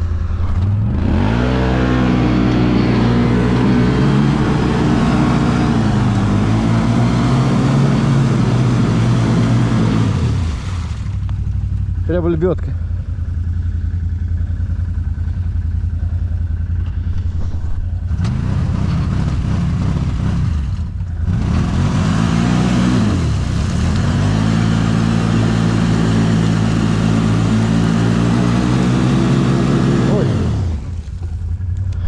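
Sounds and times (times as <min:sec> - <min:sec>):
atv engine idling and revving: 0:00.0 - 0:32.0.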